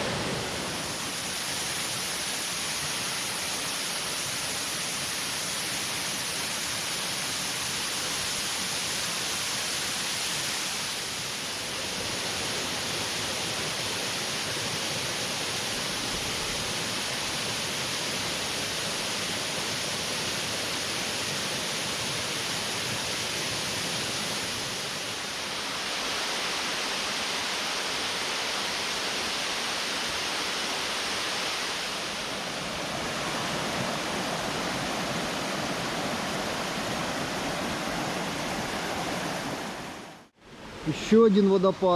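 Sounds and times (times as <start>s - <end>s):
stream and waterfall rushing: 0.0s - 41.9s.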